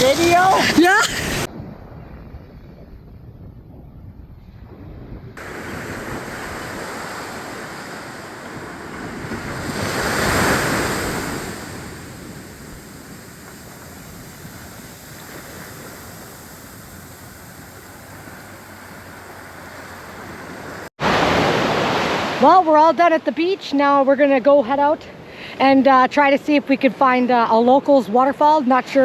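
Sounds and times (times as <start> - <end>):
ocean surf washing ashore: 0.0 - 1.9, 5.4 - 29.0
wind on microphone: 0.0 - 22.0.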